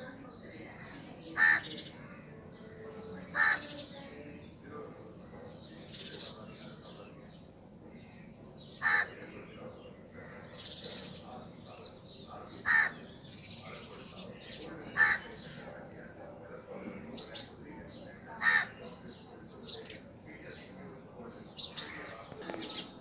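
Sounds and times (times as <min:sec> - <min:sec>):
loud short bird calls: 0:08.7 - 0:09.6, 0:12.5 - 0:13.6, 0:14.8 - 0:15.6.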